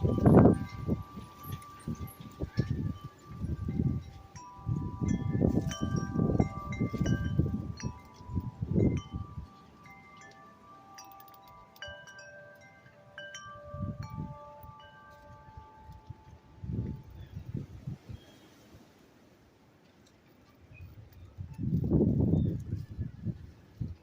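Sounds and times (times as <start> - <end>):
wind chimes ringing: 0.0 - 18.4
wind buffeting microphone: 0.0 - 18.5, 20.6 - 24.0.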